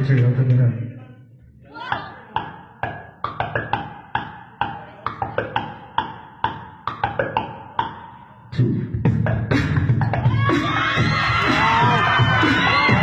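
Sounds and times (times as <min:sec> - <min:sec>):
crowd cheering: 0:10.2 - 0:13.0.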